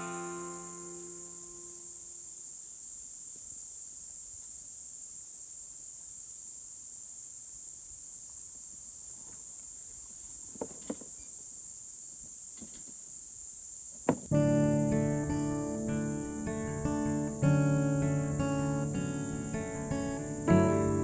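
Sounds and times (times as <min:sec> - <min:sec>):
insects chirring: 0:00.0 - 0:21.0
short knocks: 0:10.5 - 0:11.2, 0:14.0 - 0:14.5.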